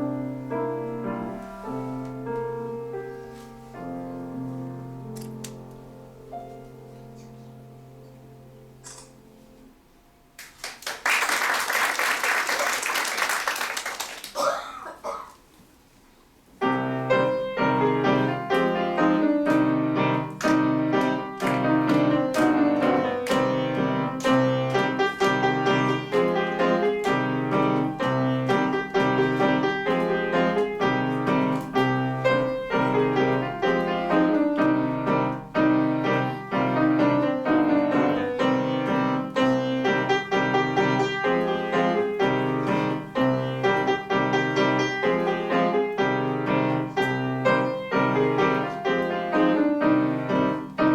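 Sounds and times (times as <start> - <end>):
solo piano quick notes: 16.6 - 50.9.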